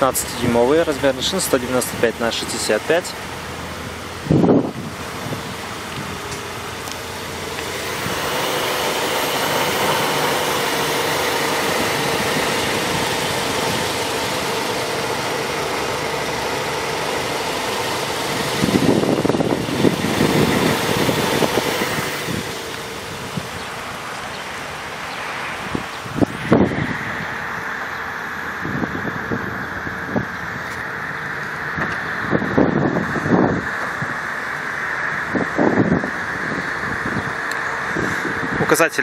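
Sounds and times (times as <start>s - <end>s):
car engine idling: 0.0s - 39.0s
wind gusts buffeting microphone: 4.1s - 6.5s, 7.4s - 14.9s, 17.6s - 24.3s, 25.5s - 27.7s, 28.4s - 39.0s.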